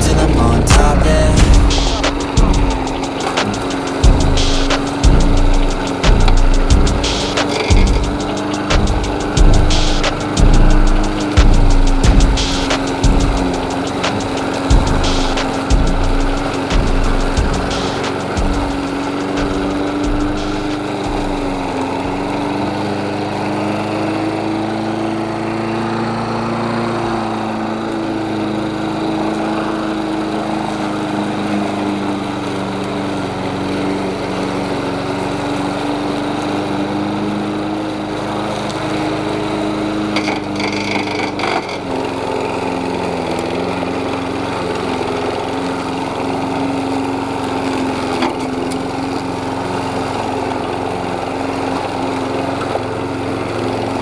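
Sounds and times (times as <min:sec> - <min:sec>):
lawn mower running: 0:00.0 - 0:54.0
high-pitched rattle: 0:00.7 - 0:21.7.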